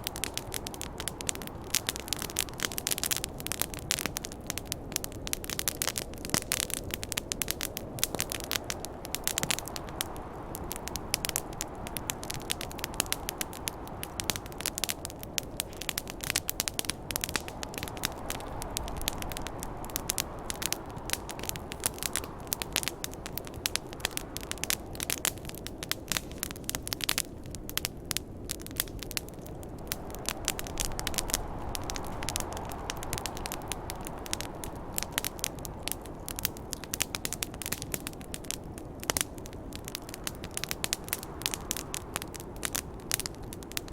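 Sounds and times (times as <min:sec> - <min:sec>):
campfire crackling and popping: 0:00.0 - 0:43.9
snowstorm wind rushing: 0:00.0 - 0:43.9.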